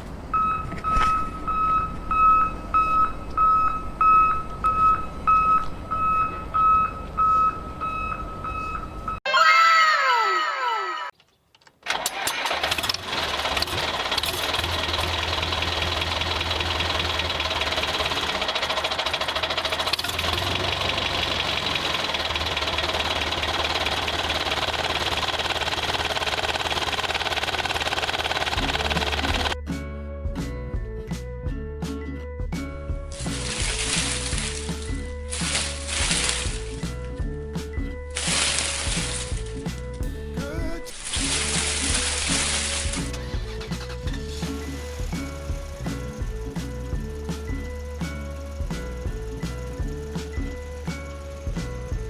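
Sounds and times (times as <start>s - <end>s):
electronic reversing alarm beeping: 0.3s - 9.3s
small motor ticking: 13.3s - 29.6s.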